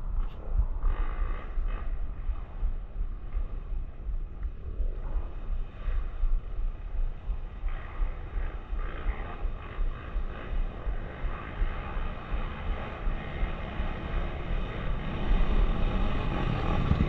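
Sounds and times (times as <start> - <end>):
wind buffeting microphone: 0.0 - 17.0
motorcycle engine running: 5.2 - 17.0.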